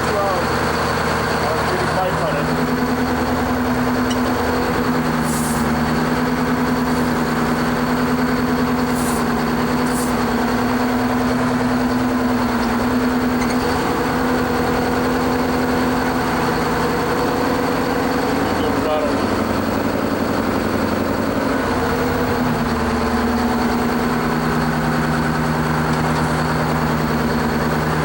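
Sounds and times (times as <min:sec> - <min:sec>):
diesel truck engine idling: 0:00.0 - 0:28.0
air hisses: 0:05.2 - 0:05.8, 0:08.8 - 0:10.3.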